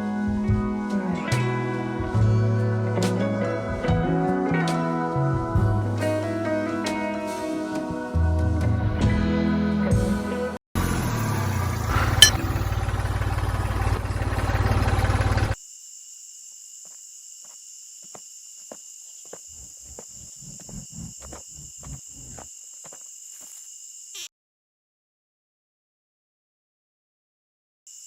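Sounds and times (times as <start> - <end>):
high whine: 11.6 - 15.6.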